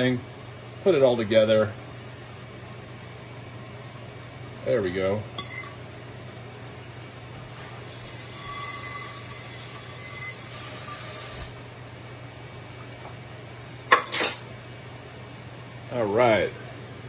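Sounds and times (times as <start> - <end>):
steady low hum: 0.0 - 17.0
food sizzling in a hot pan: 7.5 - 11.6.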